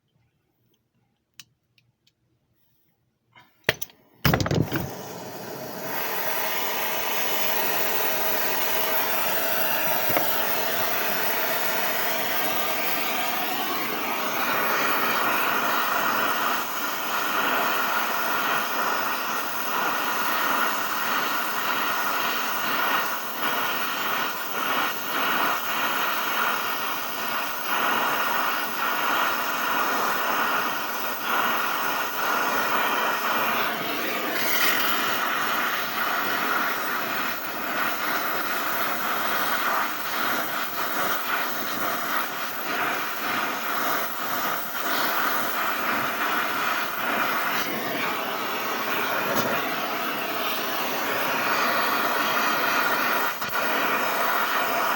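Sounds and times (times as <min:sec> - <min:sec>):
brazing torch igniter clicks: 0:03.4 - 0:09.0, 0:09.7 - 0:11.0, 0:46.2 - 0:54.5
gas flame hissing: 0:03.6 - 0:54.9
torch igniting pop: 0:03.7 - 0:11.4, 0:32.0 - 0:54.8.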